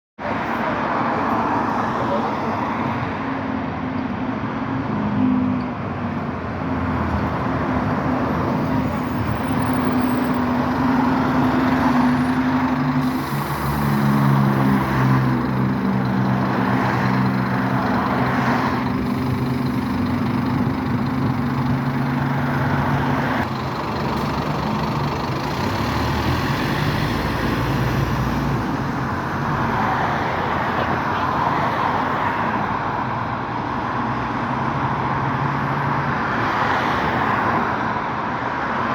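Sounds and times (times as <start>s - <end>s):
bus diesel engine running: 8.0s - 31.4s.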